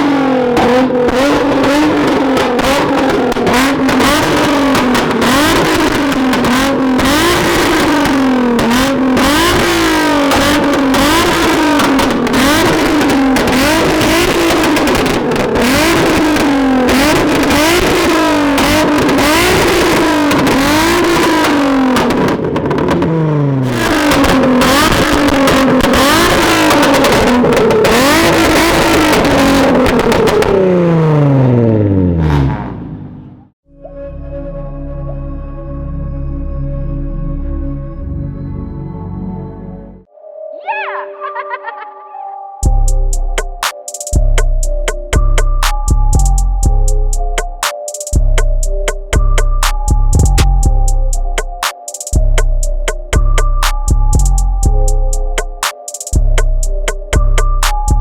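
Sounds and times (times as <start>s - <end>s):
exhaust popping and crackling: 0.0s - 33.5s, 42.6s - 58.0s
sports car engine revving: 0.0s - 33.6s.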